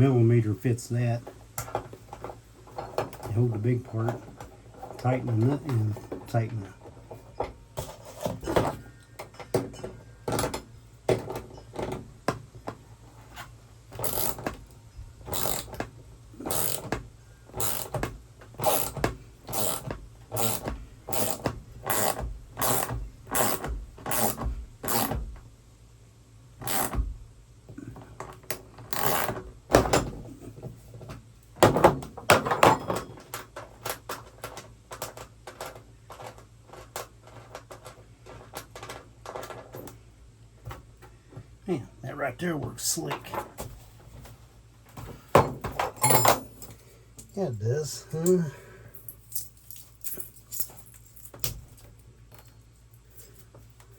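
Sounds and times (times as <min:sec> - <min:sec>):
wrench metallic clicks and scrapes: 0:14.0 - 0:14.6, 0:15.3 - 0:15.8, 0:16.4 - 0:17.0, 0:17.6 - 0:18.0, 0:18.6 - 0:25.2, 0:26.6 - 0:27.0, 0:28.5 - 0:29.4.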